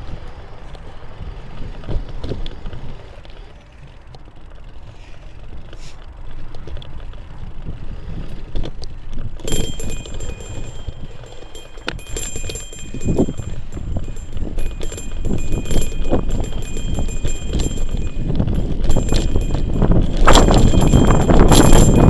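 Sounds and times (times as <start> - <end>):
bike tyre rumble: 0.0 - 22.0
rattles and knocks: 9.4 - 22.0.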